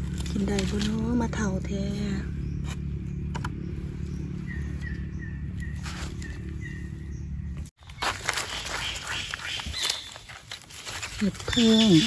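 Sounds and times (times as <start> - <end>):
rustling of dry leaf litter: 0.0 - 3.0, 3.8 - 7.0, 7.8 - 12.0
steady low rumble: 0.0 - 11.5
forest bird calling short notes: 7.8 - 10.4.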